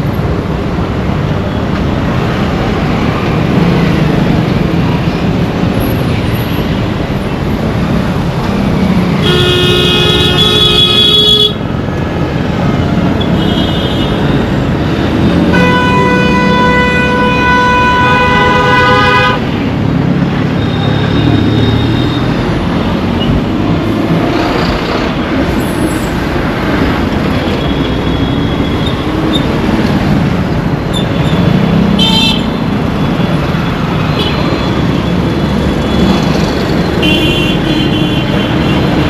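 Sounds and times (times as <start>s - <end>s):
traffic rumble of engines and tyres: 0.0s - 39.0s
loud long horn blast: 15.5s - 19.4s.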